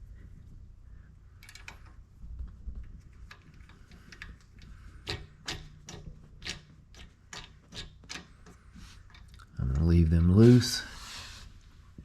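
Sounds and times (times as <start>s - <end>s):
sharp clicks and light knocks: 1.4s - 9.9s.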